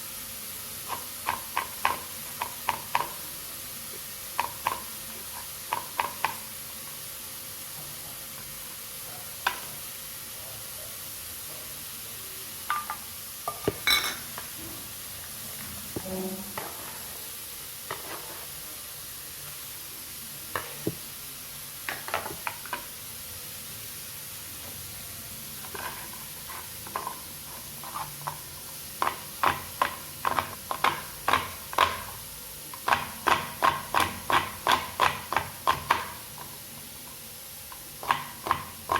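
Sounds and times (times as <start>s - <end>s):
knife chopping on cutting board: 32.9s - 36.2s.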